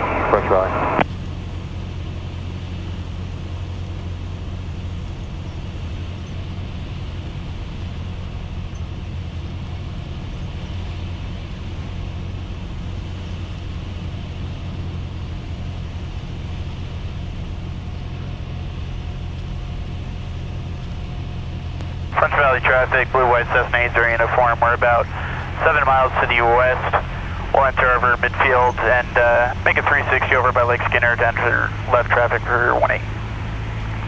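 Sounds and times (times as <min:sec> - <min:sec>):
propeller aircraft engine drone: 0:00.0 - 0:34.0.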